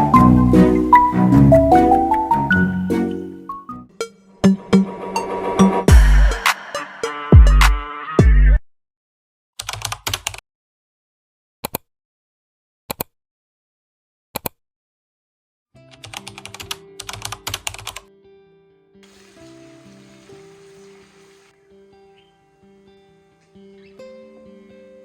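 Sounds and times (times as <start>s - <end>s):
keyboard keys clicking: 15.9s - 18.0s.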